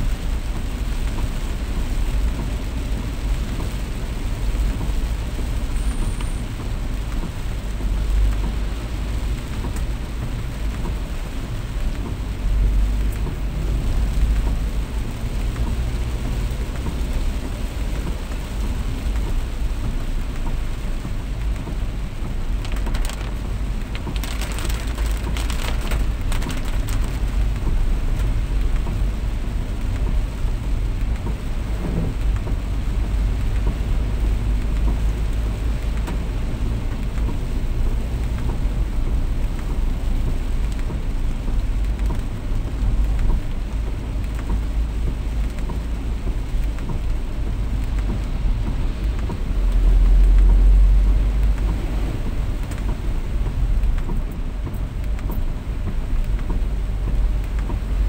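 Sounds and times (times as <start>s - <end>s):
heavy rain: 0.0s - 58.0s
deep low rumble: 21.0s - 28.1s, 44.5s - 58.0s
sharp crackles: 22.2s - 27.7s.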